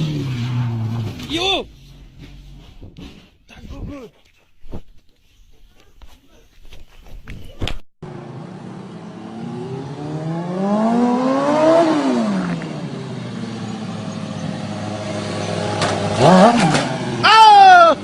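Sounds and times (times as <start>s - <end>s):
motorcycle engine revving: 0.0s - 2.3s, 8.0s - 17.3s.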